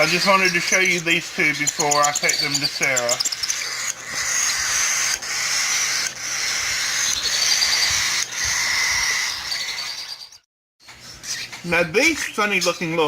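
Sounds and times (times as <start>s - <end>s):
cockatiel chicks hissing begging calls: 0.0s - 10.4s.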